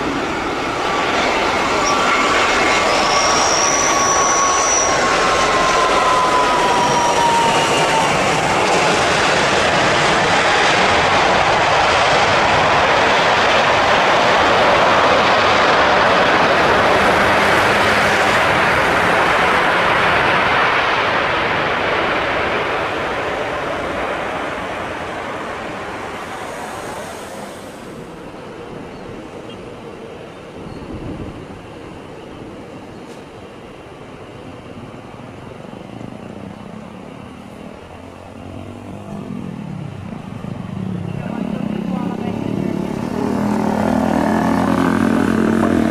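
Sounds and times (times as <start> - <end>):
jet engines roaring: 0.0 - 45.9
wind on microphone: 30.7 - 31.7.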